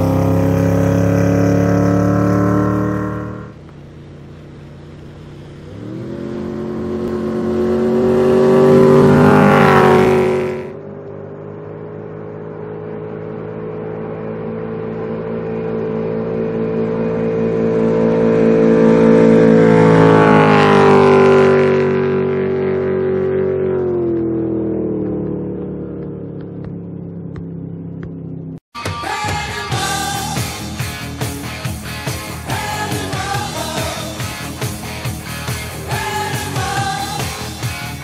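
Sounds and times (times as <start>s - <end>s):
boat engine running: 0.0s - 28.7s, 29.4s - 38.0s.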